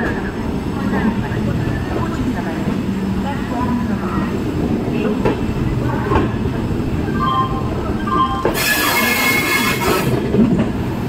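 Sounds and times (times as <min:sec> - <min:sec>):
train wheels rumbling on rails: 0:00.0 - 0:11.0
high wheel squeals: 0:07.1 - 0:10.2.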